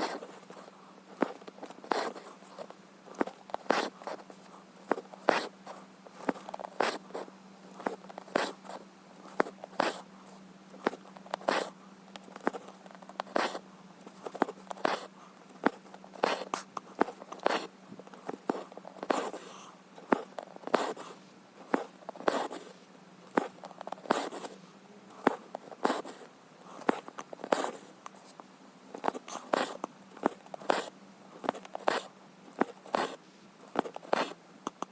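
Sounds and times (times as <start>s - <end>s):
faint steady hum: 0.0s - 34.9s
needle poking through cloth: 3.2s - 4.3s, 4.9s - 5.6s, 6.2s - 7.2s, 7.8s - 10.0s, 10.8s - 21.1s, 21.7s - 22.7s, 23.3s - 24.6s, 29.0s - 34.9s.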